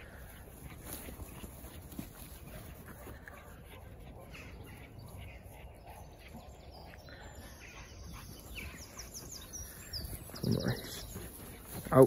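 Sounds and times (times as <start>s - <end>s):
outdoor background noise: 0.0s - 12.0s
small bird chirping: 4.4s - 12.0s.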